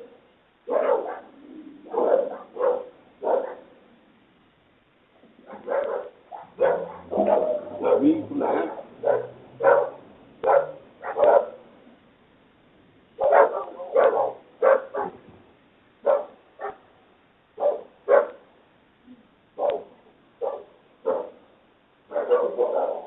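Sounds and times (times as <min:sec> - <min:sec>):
dog barking: 0:00.6 - 0:03.8, 0:05.4 - 0:11.6, 0:13.2 - 0:15.3, 0:16.0 - 0:16.9, 0:17.6 - 0:18.5, 0:19.6 - 0:21.5, 0:22.1 - 0:23.0.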